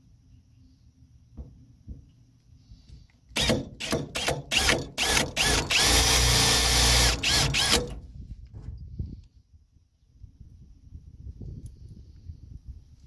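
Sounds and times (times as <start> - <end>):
power drill driving screw into metal: 3.3 - 8.0.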